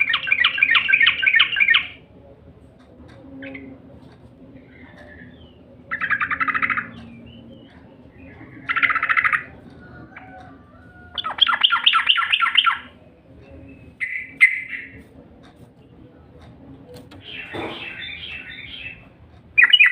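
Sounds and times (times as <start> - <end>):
bulbul bird song chattering: 0.0 - 2.0, 11.1 - 15.0, 17.1 - 19.9.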